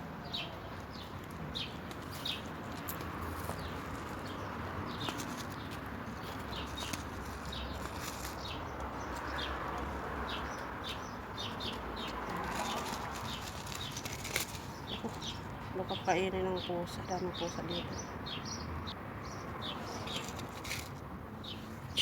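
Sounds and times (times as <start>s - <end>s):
bird chirping: 21.4s - 22.0s.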